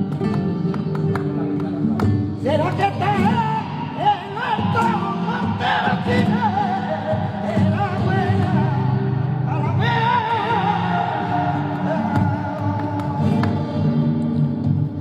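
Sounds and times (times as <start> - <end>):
low musical backing: 0.0 - 5.4
man singing flamenco: 0.0 - 15.0.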